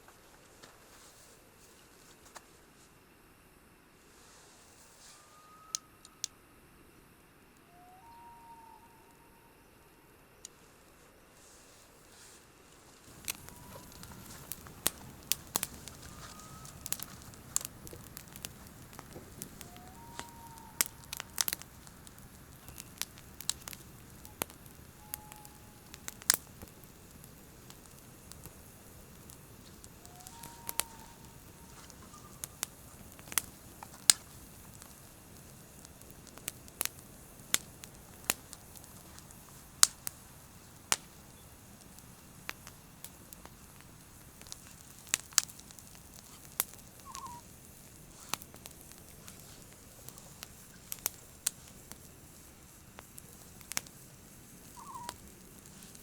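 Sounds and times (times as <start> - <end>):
low hiss of flames: 0.0 - 8.3, 10.1 - 56.0
faint short whistles: 5.0 - 6.0, 7.7 - 9.6, 16.0 - 16.9, 19.6 - 21.4, 24.3 - 25.9, 30.0 - 32.8, 47.0 - 47.4
campfire pops and crackles: 12.1 - 56.0.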